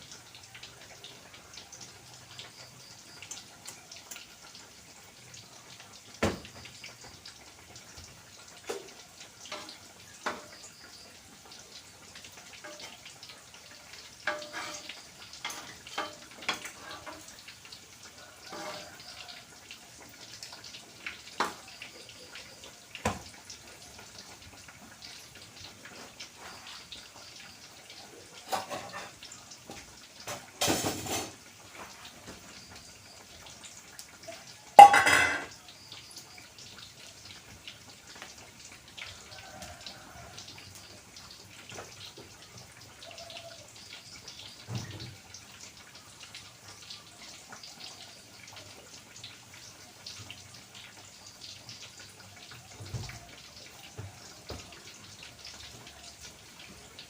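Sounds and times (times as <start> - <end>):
faint steady crackle: 0.0 - 57.0
pots and pans clanking: 8.6 - 10.6, 12.5 - 13.2, 13.9 - 17.6, 18.4 - 19.2, 21.4 - 21.7, 28.4 - 32.4, 34.8 - 35.6.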